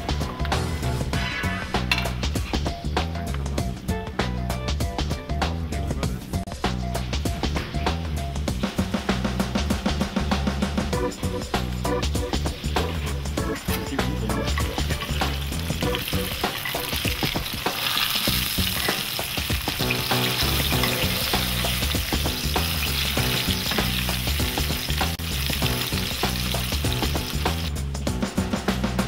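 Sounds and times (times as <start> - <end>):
eggplant sizzling in oil: 14.4 - 27.7.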